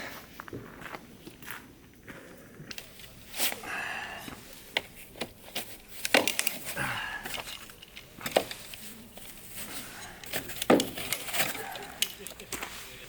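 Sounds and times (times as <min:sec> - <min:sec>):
firewood being chopped: 0:10.2 - 0:12.7.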